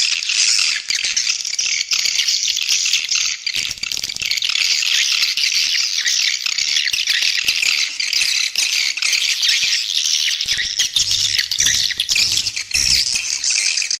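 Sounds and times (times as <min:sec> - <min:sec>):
swiftlets twittering: 0:03.6 - 0:05.6, 0:10.4 - 0:14.0.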